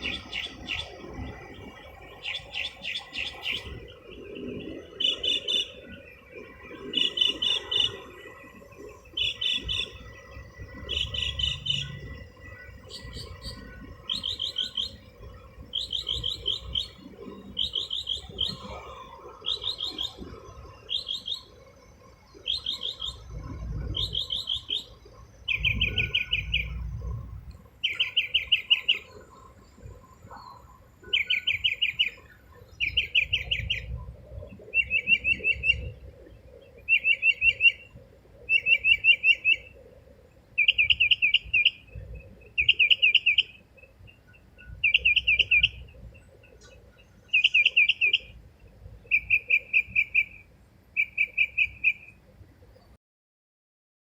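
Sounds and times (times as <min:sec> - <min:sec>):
songbird imitating car alarm: 0:00.0 - 0:01.0, 0:02.1 - 0:03.8, 0:04.8 - 0:06.0, 0:06.8 - 0:08.1, 0:09.1 - 0:18.8, 0:19.4 - 0:20.2, 0:20.8 - 0:21.6, 0:22.4 - 0:27.0, 0:27.8 - 0:29.3, 0:30.4 - 0:34.0, 0:34.7 - 0:36.0, 0:36.8 - 0:37.9, 0:38.5 - 0:39.8, 0:40.6 - 0:48.4, 0:49.0 - 0:52.2.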